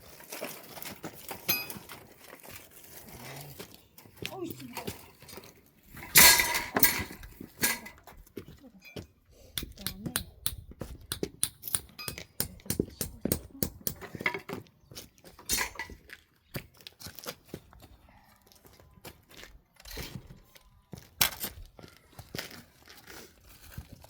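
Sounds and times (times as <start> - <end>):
clinks and knocks: 0.2 - 2.4, 6.0 - 8.1, 8.8 - 14.6, 15.4 - 16.1.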